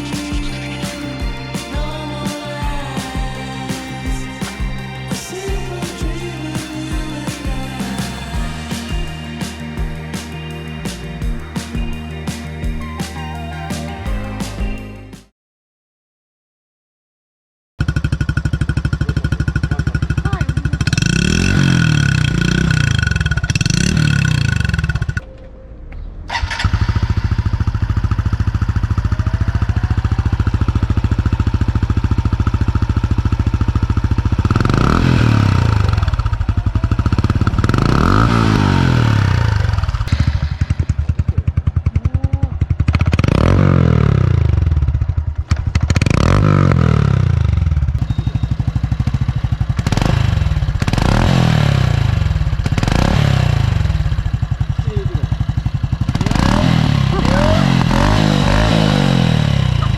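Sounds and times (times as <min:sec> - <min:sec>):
motorcycle engine idling: 0:00.0 - 0:15.1, 0:17.8 - 0:24.1, 0:26.3 - 0:59.9
motorcycle engine revving: 0:00.0 - 0:15.2, 0:17.8 - 0:25.2, 0:26.3 - 0:59.9.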